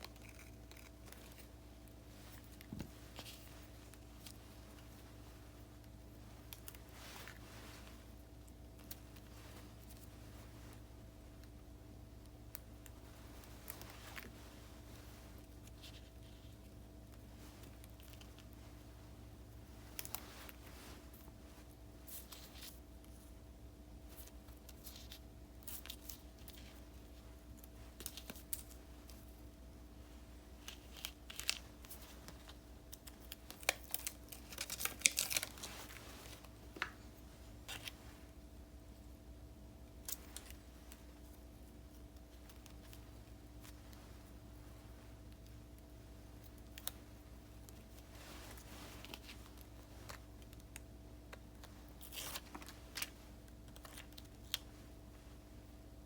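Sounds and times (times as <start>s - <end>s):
paper rustling and crinkling: 0.0s - 8.2s, 19.6s - 23.3s, 24.0s - 29.5s, 30.2s - 38.3s, 46.4s - 54.9s
paper rustling: 30.6s - 38.2s.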